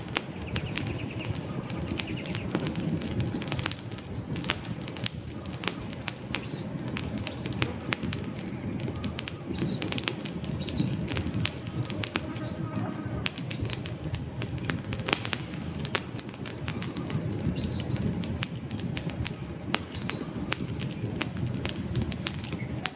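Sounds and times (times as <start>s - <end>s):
campfire crackling and popping: 0.0s - 22.9s
low rush of flames: 0.0s - 22.9s.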